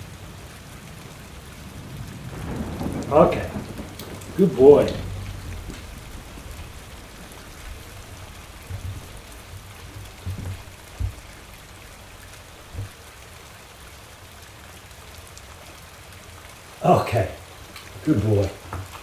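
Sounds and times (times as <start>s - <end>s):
rain falling: 0.0s - 19.0s
soft low thumps: 2.5s - 13.0s.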